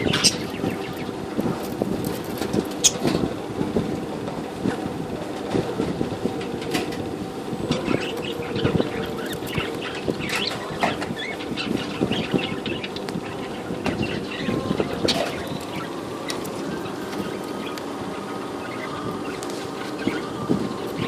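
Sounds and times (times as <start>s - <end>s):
budgerigars chirping and chattering: 0.0s - 3.1s, 7.7s - 21.0s
low rumble and clatter: 0.0s - 16.6s.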